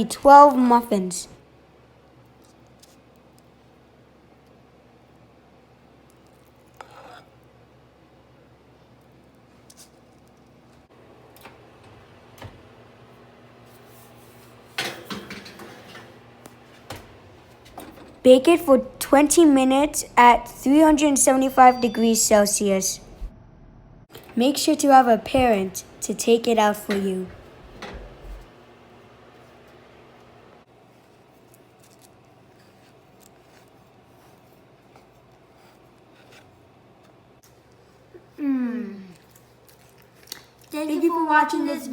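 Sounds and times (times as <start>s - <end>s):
utensils and dishes clattering: 14.8s - 16.2s.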